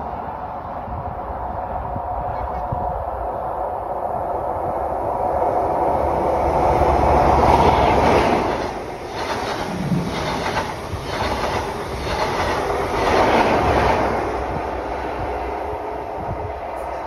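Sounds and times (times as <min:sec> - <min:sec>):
wheels clattering over rail joints: 0:07.3 - 0:14.2.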